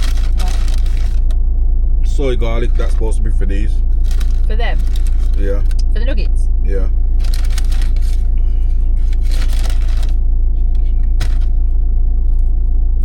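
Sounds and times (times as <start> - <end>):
food packaging rustling: 0.0 - 1.3, 4.0 - 5.4, 7.2 - 8.3, 9.0 - 10.2, 11.0 - 11.5
vehicle cabin engine rumble: 0.0 - 13.0.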